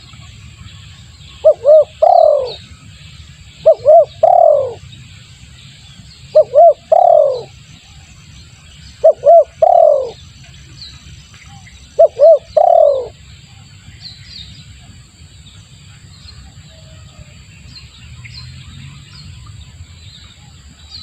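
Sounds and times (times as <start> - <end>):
dove cooing: 1.4 - 2.6, 3.6 - 4.8, 6.3 - 7.5, 9.0 - 10.2, 12.0 - 13.2.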